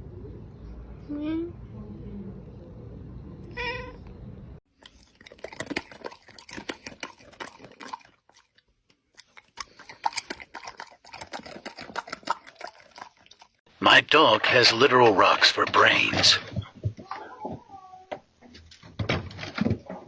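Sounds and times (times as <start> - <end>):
dog crunching on something hard: 4.7 - 13.6.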